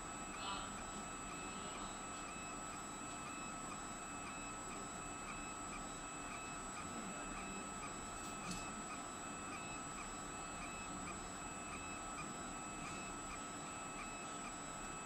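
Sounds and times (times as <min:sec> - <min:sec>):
laser machine whine: 0:00.0 - 0:15.0.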